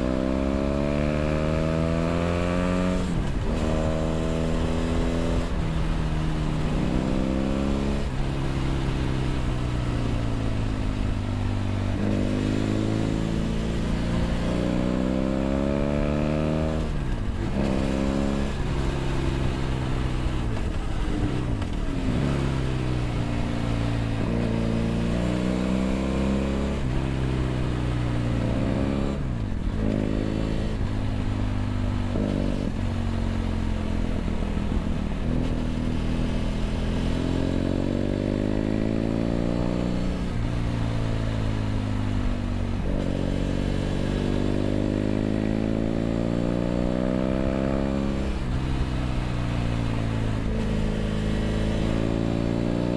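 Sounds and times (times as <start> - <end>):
motorcycle engine while riding: 0.0 - 52.9.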